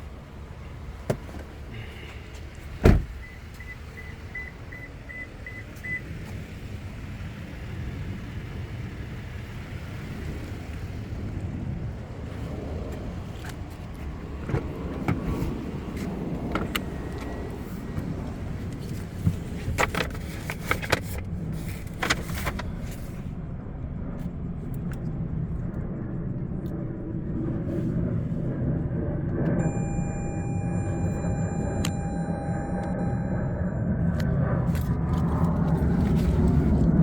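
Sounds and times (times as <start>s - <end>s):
short high beeps: 29.6s - 34.0s.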